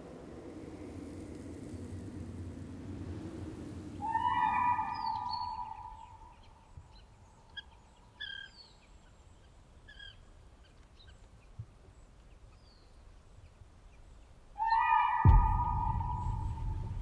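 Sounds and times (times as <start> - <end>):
bird chirps: 4.0 - 17.0.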